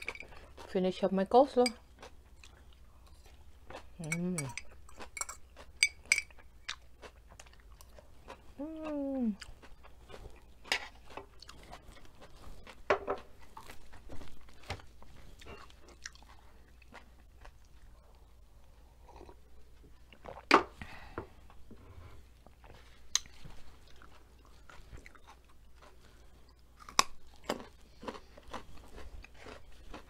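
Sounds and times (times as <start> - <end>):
crunchy chewing: 1.8 - 19.4, 22.4 - 30.0
person humming mmm: 4.0 - 4.6, 8.6 - 9.4.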